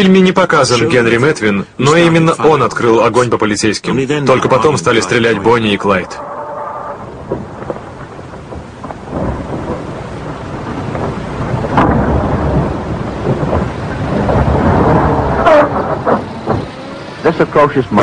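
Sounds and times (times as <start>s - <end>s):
car engine rumbling: 4.4s - 18.0s
sharp crack: 6.0s - 18.0s.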